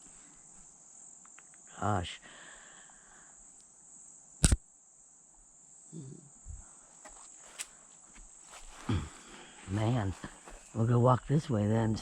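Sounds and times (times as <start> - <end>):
crickets chirring: 0.0 - 12.0
sharp snap: 4.4 - 4.6.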